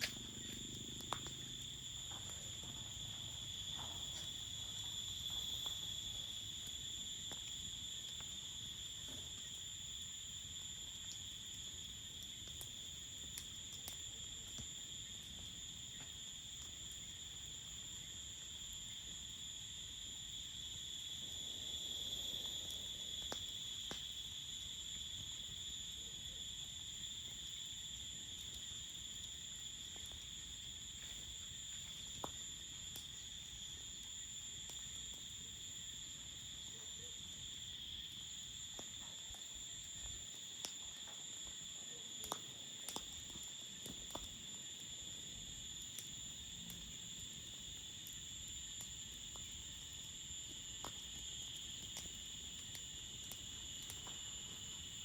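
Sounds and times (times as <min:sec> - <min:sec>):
crickets chirring: 0:00.0 - 0:55.0.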